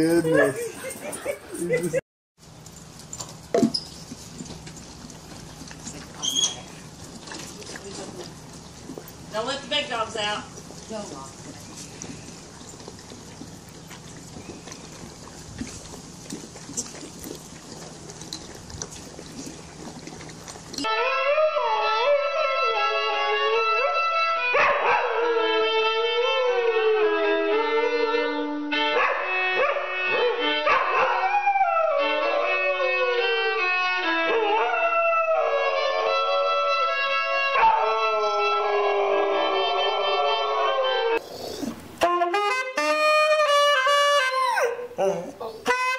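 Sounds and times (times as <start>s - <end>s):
dog howling: 30.8s - 32.8s, 34.3s - 41.7s, 44.2s - 45.7s.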